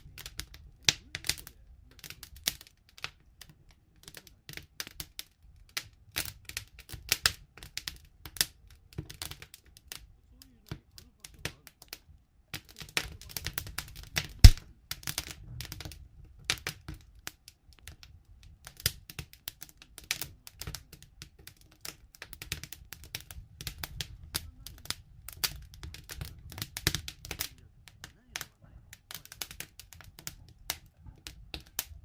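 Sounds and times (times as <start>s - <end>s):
campfire crackling: 0.0s - 32.0s
low rumble of flames: 0.0s - 32.0s.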